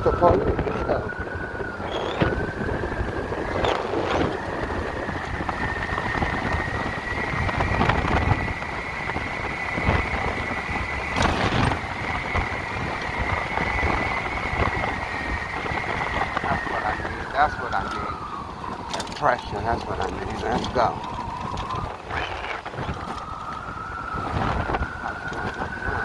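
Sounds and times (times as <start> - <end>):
electric motorcycle motor whine: 0.0 - 26.0
road rumble: 0.0 - 26.0
wind: 0.0 - 26.0.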